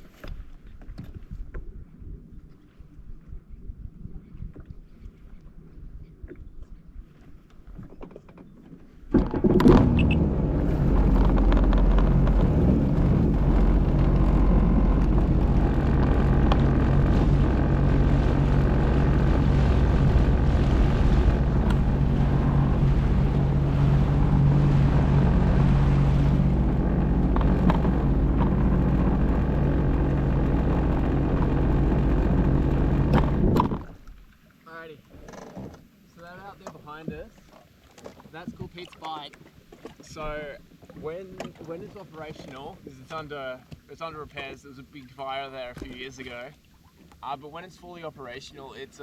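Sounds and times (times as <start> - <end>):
jet ski engine: 9.1 - 34.1.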